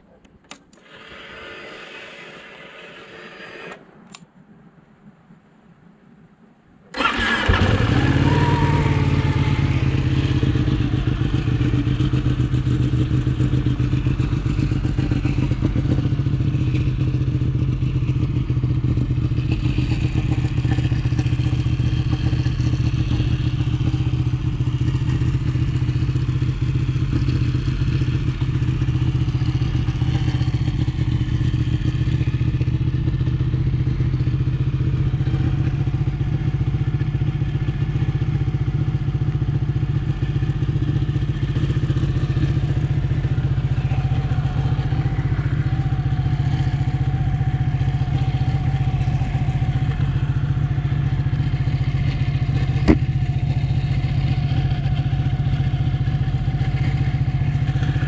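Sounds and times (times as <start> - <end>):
sharp click: 0.2 - 0.9, 52.8 - 53.0
motorcycle engine running: 7.0 - 58.0.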